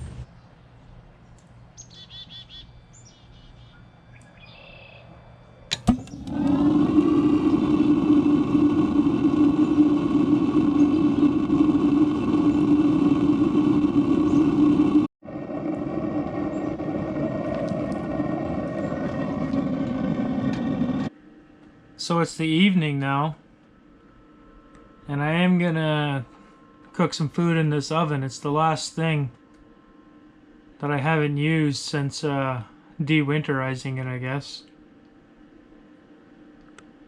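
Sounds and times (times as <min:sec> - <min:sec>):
birds chirping: 0:00.0 - 0:05.3, 0:09.2 - 0:13.1, 0:13.9 - 0:14.9, 0:16.4 - 0:20.1
motor humming: 0:02.7 - 0:21.1
click: 0:36.6 - 0:36.9.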